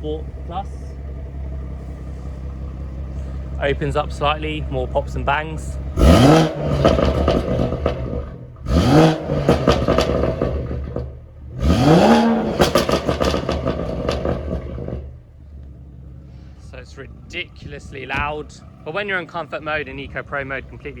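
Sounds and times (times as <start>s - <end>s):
car engine revving: 0.0s - 21.0s
engine idling: 0.0s - 21.0s
exhaust pops and bangs: 2.6s - 15.1s, 17.6s - 18.6s.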